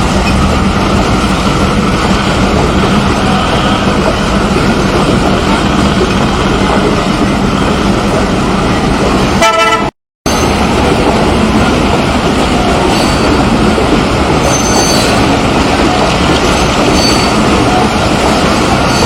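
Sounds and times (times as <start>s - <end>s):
loud steady rushing noise: 0.0s - 9.6s
horn toot: 9.4s - 9.9s.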